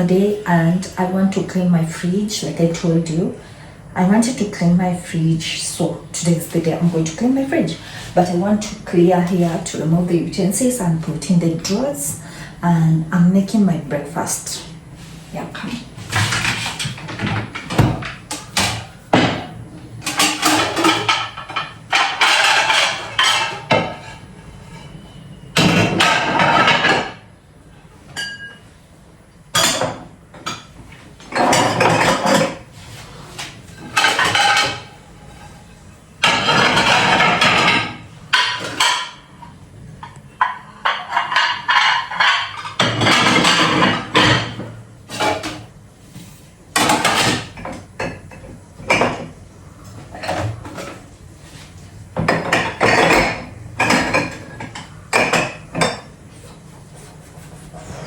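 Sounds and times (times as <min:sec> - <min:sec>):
kitchen utensils and dishes clattering: 0:14.0 - 0:27.3, 0:28.1 - 0:28.7, 0:29.5 - 0:45.8, 0:46.7 - 0:56.7.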